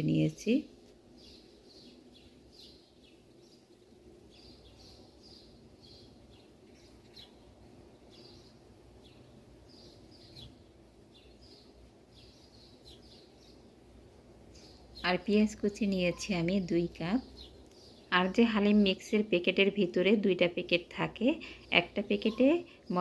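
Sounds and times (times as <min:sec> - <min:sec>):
small bird chirping: 0:01.1 - 0:13.9, 0:14.5 - 0:19.5, 0:21.4 - 0:23.0.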